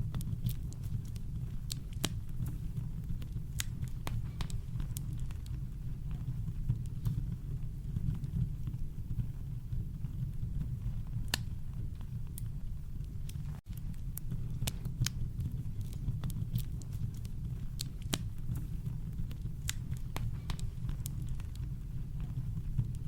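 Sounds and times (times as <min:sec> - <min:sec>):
campfire crackling: 0:00.0 - 0:23.0.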